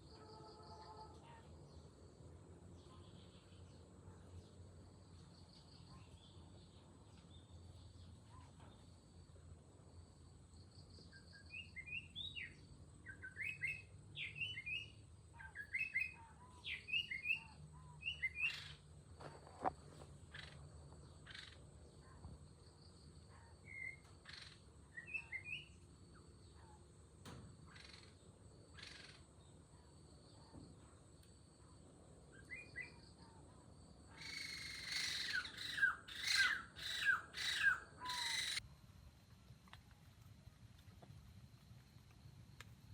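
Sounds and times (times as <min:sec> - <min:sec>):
small birds chirping: 0:02.7 - 0:09.3, 0:10.5 - 0:31.6, 0:32.3 - 0:38.6
faint steady high whine: 0:38.0 - 0:42.9.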